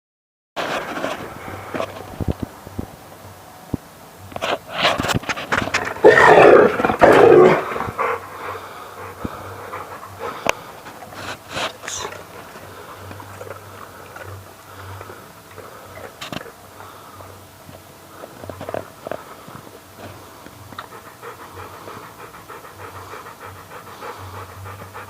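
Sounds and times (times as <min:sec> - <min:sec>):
rough animal outbursts: 0:05.8 - 0:08.0.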